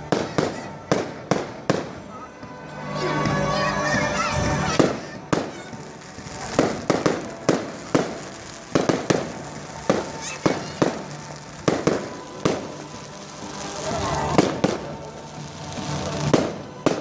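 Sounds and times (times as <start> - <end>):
fireworks rushing: 0.0 - 17.0
fireworks shells bursting: 4.7 - 17.0.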